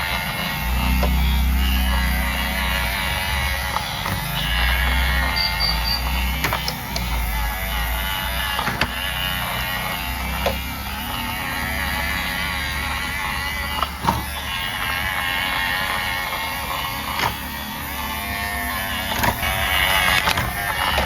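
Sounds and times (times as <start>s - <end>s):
toy motor whirring: 0.0s - 21.0s
sharp clicks: 0.5s - 11.4s.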